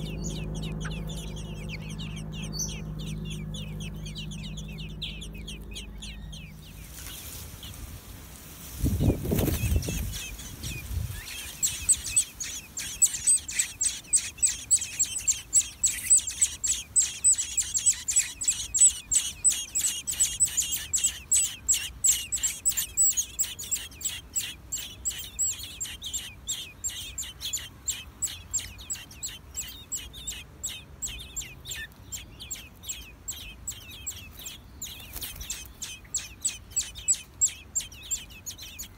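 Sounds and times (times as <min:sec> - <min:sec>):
low rumble: 0:00.0 - 0:12.3
nestlings chirping: 0:00.0 - 0:38.9.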